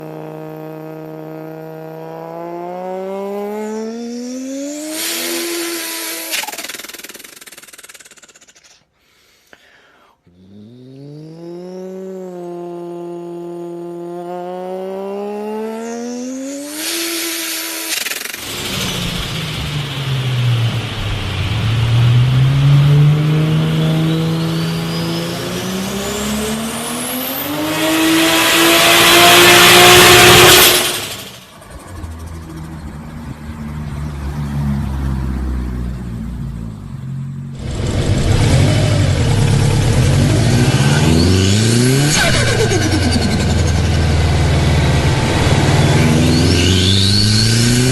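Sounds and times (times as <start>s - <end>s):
car engine revving: 0.0s - 8.1s, 10.4s - 47.9s
turbo flutter: 0.0s - 8.8s, 10.4s - 22.4s, 24.2s - 33.0s, 37.6s - 47.9s
turbo whistle: 23.5s - 27.5s, 40.5s - 47.9s.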